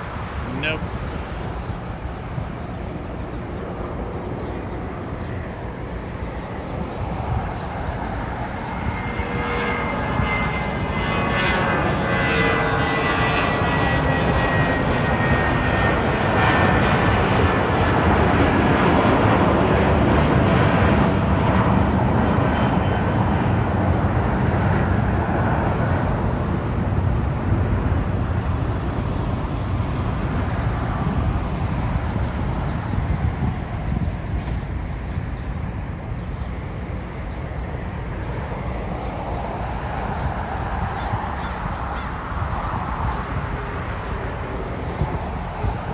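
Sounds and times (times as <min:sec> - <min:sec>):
jet airliner passing: 0:00.0 - 0:45.9.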